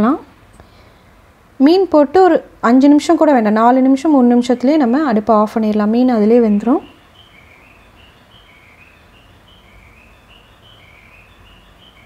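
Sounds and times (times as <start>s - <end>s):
low steady background noise: 0.0s - 12.0s
faint bird chirping: 4.0s - 12.0s.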